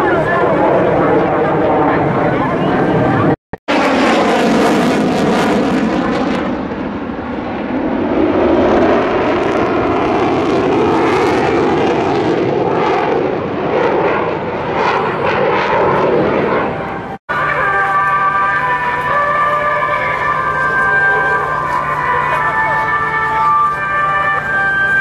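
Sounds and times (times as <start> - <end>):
jet engine roar: 0.0 - 25.0.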